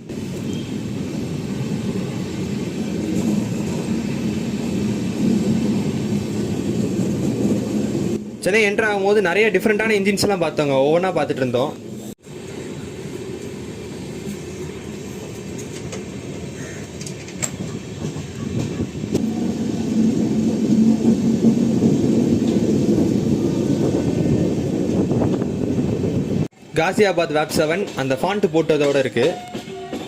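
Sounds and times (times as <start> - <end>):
train rumbling on track: 0.0 - 30.0.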